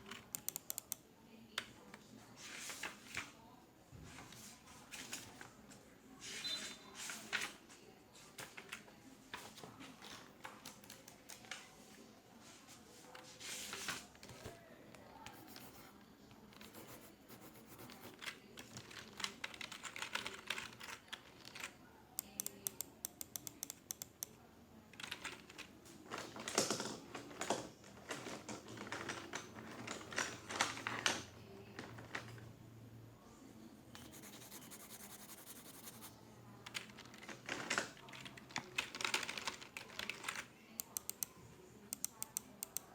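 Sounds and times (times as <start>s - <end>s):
computer keyboard typing: 0.0s - 1.0s, 10.4s - 11.6s, 16.5s - 24.4s, 25.0s - 25.7s, 36.7s - 42.9s.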